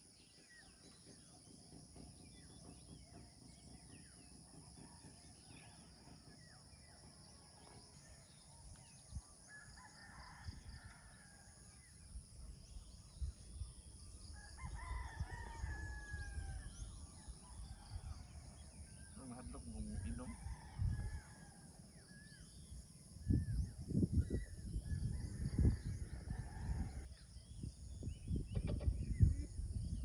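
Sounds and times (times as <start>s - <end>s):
roosters crowing: 14.4s - 16.6s.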